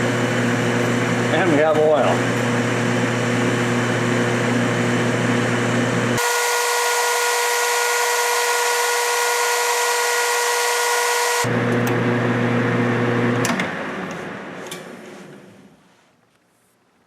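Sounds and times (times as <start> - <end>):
metal lathe whine: 0.0 - 11.6
metal lathe hum: 0.0 - 13.4.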